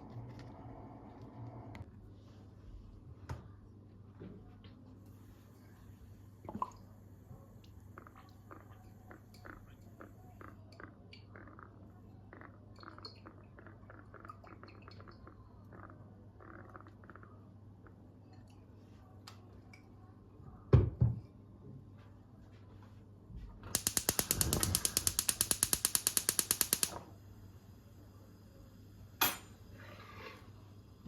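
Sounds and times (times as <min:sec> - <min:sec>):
ratchet mechanism clicking: 0:23.8 - 0:27.0
sharp click: 0:23.8 - 0:27.0.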